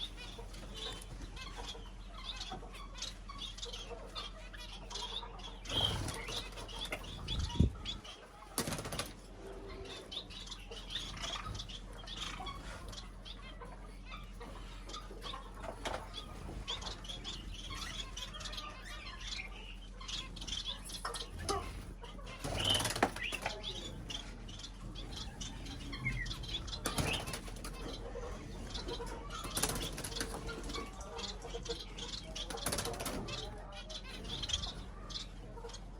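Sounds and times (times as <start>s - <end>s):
birds flapping wings: 5.7s - 7.6s, 8.4s - 9.3s, 21.1s - 24.2s, 26.2s - 28.0s, 28.7s - 31.0s, 32.4s - 33.5s.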